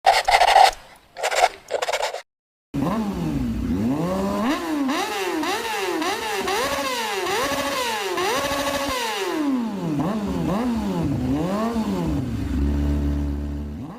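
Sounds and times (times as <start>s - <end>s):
motorcycle engine revving: 2.8s - 13.9s.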